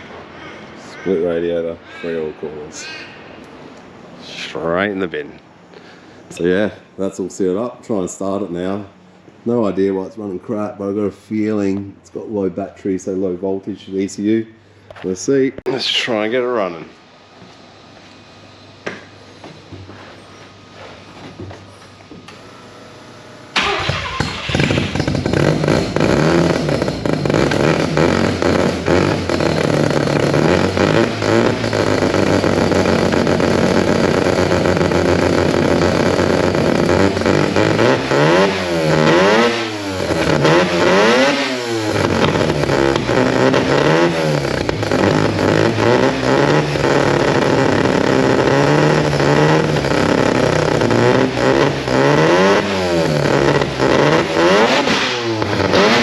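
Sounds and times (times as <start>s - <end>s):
rotary engine revving: 23.5s - 56.0s.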